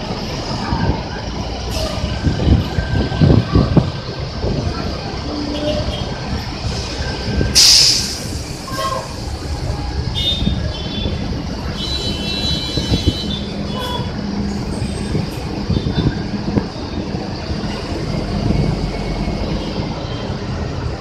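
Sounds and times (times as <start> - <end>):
bus diesel engines rumbling: 0.0 - 21.0
air brake hiss: 6.6 - 9.3.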